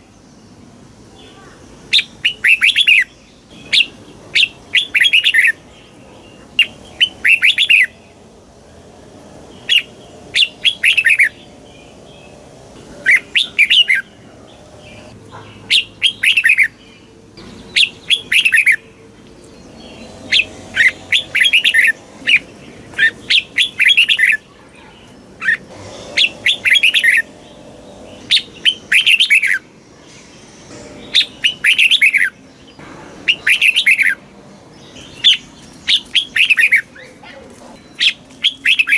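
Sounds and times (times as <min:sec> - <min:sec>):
bird whistled song: 0:01.9 - 0:05.6, 0:06.6 - 0:08.0, 0:09.6 - 0:11.5, 0:13.0 - 0:14.2, 0:15.7 - 0:16.8, 0:17.4 - 0:18.9, 0:19.6 - 0:25.6, 0:28.2 - 0:29.6, 0:30.7 - 0:32.4, 0:33.3 - 0:34.2, 0:35.0 - 0:37.2, 0:37.8 - 0:38.9.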